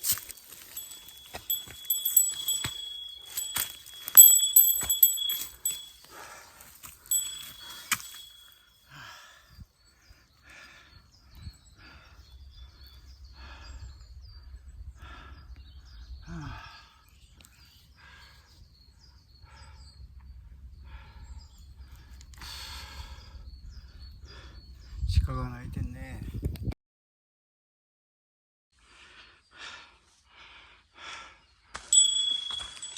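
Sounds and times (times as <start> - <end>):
small birds chirping: 0.0 - 5.9
wind rumbling on microphone: 24.8 - 26.7.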